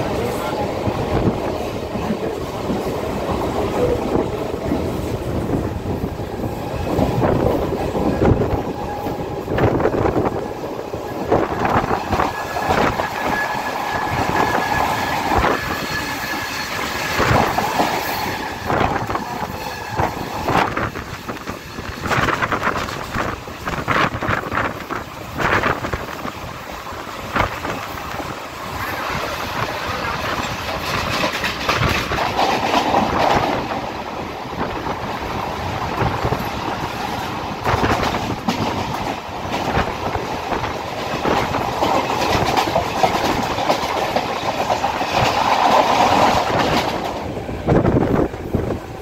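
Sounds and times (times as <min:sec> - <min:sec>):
passing train rushing by: 0:00.0 - 0:49.0
train wheels clattering over rail joints: 0:27.1 - 0:33.8, 0:35.8 - 0:48.6.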